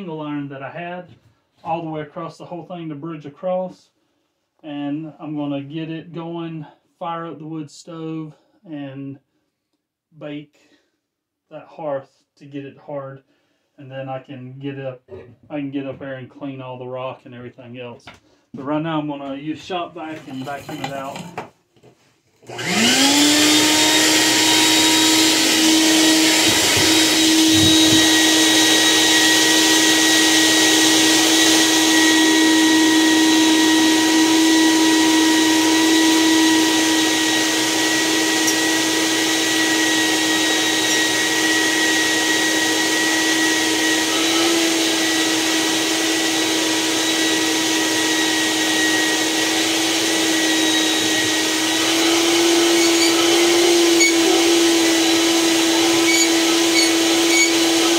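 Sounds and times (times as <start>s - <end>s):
shop vac running: 22.4s - 57.9s.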